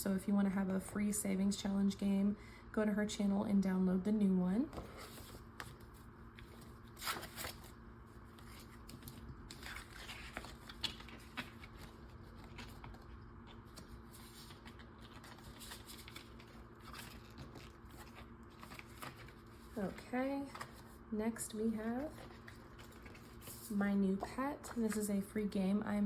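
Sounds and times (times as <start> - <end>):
paper rustling and crinkling: 4.7 - 21.0, 21.9 - 25.0.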